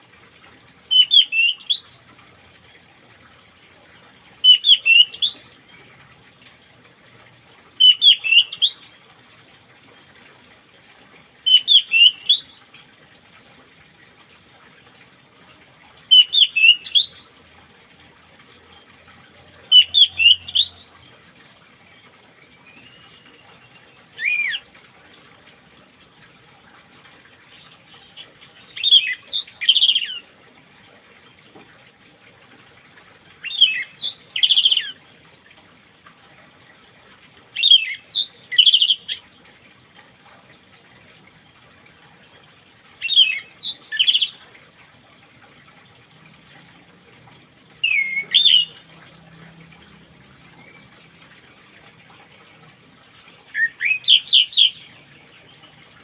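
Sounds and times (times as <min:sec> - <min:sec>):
thrush singing whistled phrases: 0:53.5 - 0:54.9.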